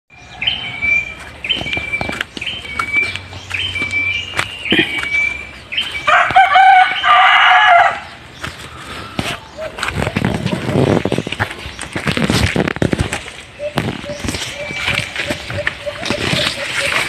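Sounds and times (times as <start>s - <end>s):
bird whistled call: 0.2s - 6.2s, 13.6s - 17.0s
twigs and leaves crunching underfoot: 1.0s - 17.0s.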